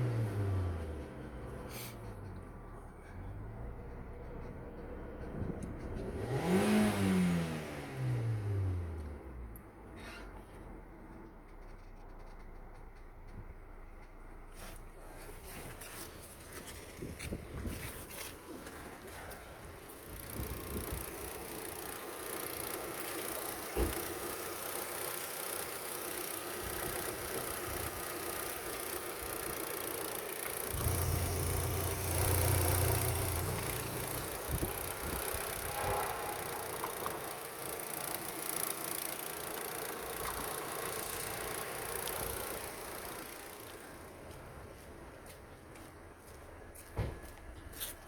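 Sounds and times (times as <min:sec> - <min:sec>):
car engine running: 0:13.8 - 0:47.4.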